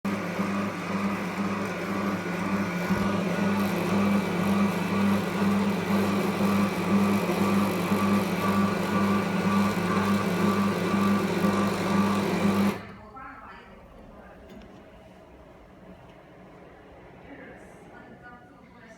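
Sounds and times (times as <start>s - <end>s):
vacuum cleaner motor humming: 0.1s - 13.0s.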